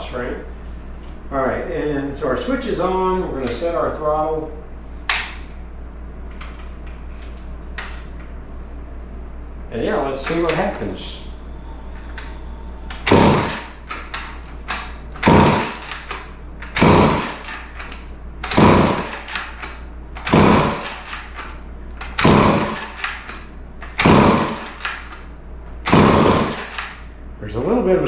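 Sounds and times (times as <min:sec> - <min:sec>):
chainsaw recoil starter pulls: 0:10.2 - 0:10.9, 0:12.9 - 0:25.2, 0:25.8 - 0:27.0
small engine cranking: 0:12.9 - 0:27.0.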